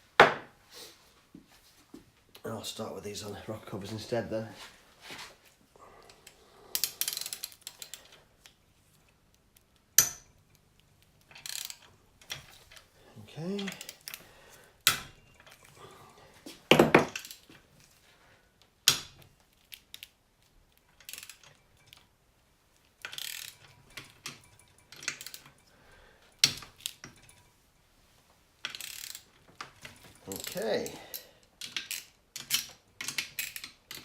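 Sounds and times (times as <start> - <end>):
ratchet clicking: 6.8 - 8.1, 11.2 - 12.4, 21.0 - 21.6, 23.0 - 25.6, 28.6 - 29.3, 30.3 - 34.0
metal tools clinking and knocking: 11.2 - 14.2, 14.8 - 15.8, 16.5 - 17.5, 23.0 - 27.6, 28.6 - 34.0.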